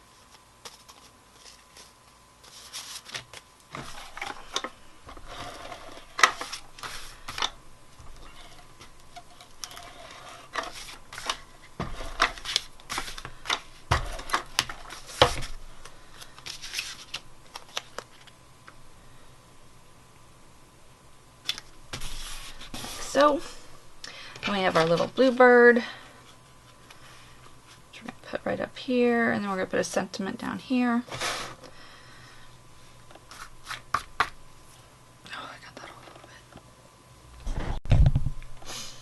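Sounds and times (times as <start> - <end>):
paper rustling: 0.0 - 7.5, 8.2 - 18.3, 21.5 - 23.2.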